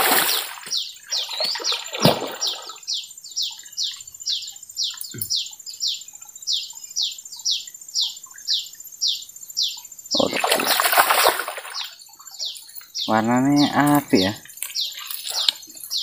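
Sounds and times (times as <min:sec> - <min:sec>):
fish splashing at surface: 0:00.0 - 0:02.8, 0:10.2 - 0:12.0.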